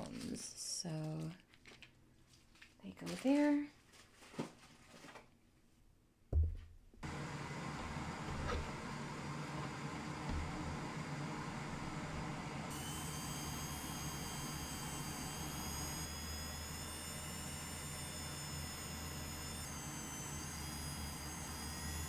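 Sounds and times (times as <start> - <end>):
electric appliance whine: 7.0 - 22.0.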